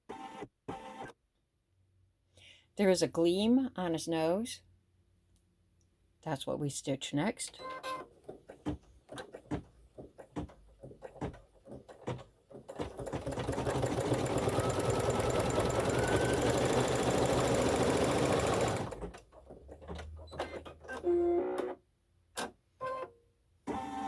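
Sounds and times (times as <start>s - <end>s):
embroidery machine stitching: 11.1s - 19.8s.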